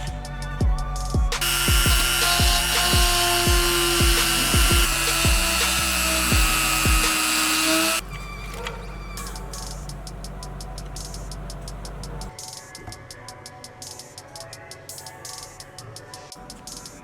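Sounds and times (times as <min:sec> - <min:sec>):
background music with thumping beat: 0:00.0 - 0:08.0, 0:09.2 - 0:17.0
rotary tool whine: 0:01.3 - 0:08.6.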